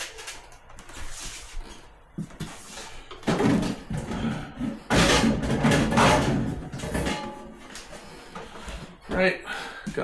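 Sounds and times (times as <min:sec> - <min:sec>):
plastic clattering and scraping: 0:02.4 - 0:09.0.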